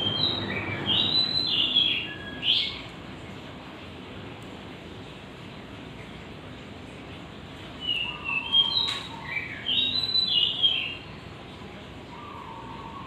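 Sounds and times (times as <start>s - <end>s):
dove calling whistled notes: 0.0s - 2.9s, 7.8s - 11.1s, 12.0s - 13.0s.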